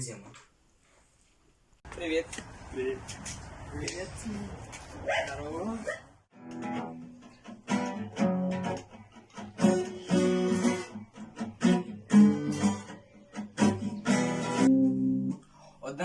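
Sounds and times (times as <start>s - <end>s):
acoustic guitar strumming chords: 6.4s - 15.4s.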